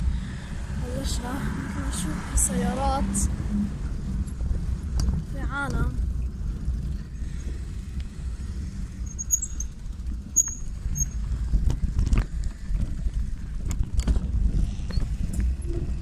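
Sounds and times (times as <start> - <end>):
wind and ground rumble: 0.0 - 16.0
bicycle knocks and rattles: 9.1 - 16.0
brief high squeaks: 10.4 - 11.2.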